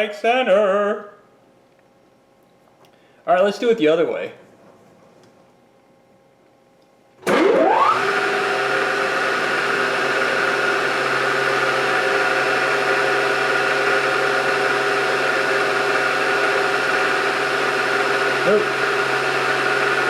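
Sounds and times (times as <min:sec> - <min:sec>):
milling machine spindle motor whining: 0:07.3 - 0:20.0.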